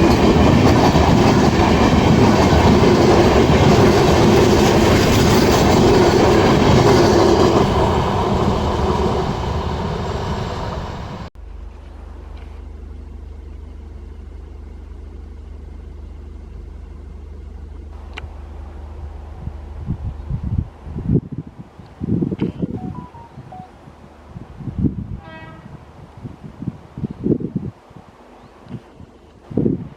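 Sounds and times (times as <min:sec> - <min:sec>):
train wheels clattering over rails: 0:00.0 - 0:11.3.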